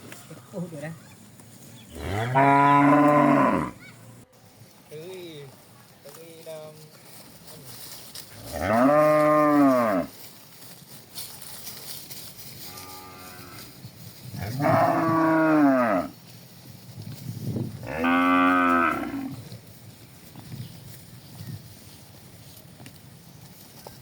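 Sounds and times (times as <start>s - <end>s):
cattle mooing: 2.0s - 3.8s, 8.5s - 10.1s, 14.4s - 16.1s, 17.8s - 19.4s.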